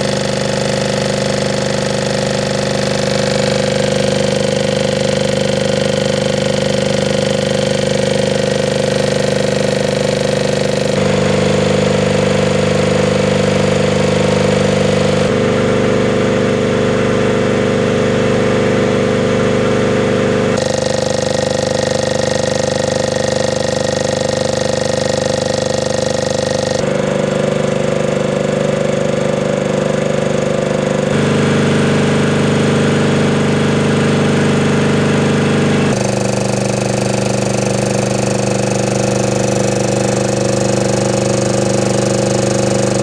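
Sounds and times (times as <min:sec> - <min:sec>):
air compressor running: 0:00.0 - 0:43.0.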